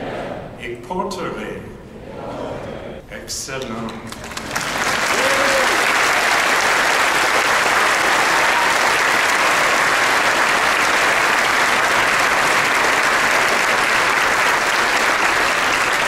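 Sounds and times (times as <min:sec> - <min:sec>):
large crowd applauding: 0:04.1 - 0:16.0.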